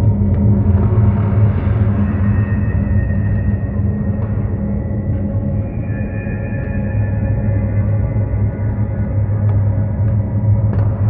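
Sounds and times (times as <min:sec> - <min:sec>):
deep drone hum: 0:00.0 - 0:11.0.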